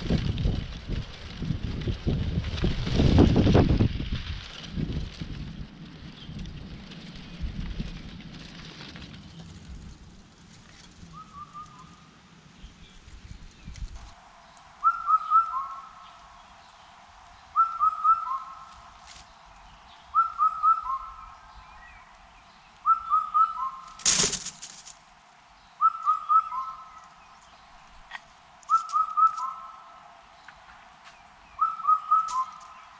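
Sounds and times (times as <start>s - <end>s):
bird calling a whistled phrase: 11.1s - 11.9s, 14.8s - 16.1s, 17.6s - 18.7s, 20.1s - 21.4s, 22.8s - 23.9s, 25.8s - 27.0s, 28.7s - 29.9s, 31.6s - 32.8s
loud brief rustling: 23.9s - 25.0s.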